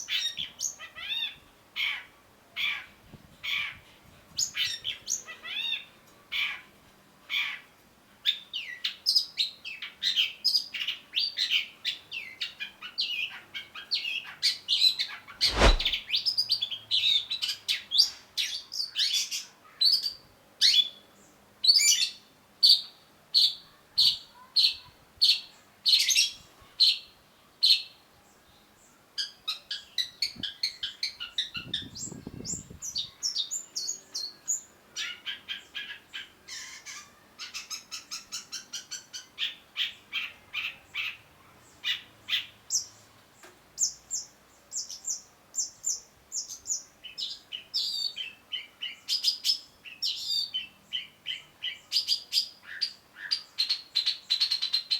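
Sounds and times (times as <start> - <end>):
loud thump: 15.5 - 16.0.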